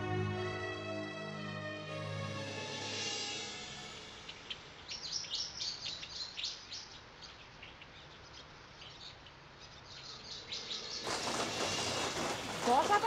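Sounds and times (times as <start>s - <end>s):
small birds chirping: 4.2s - 13.0s.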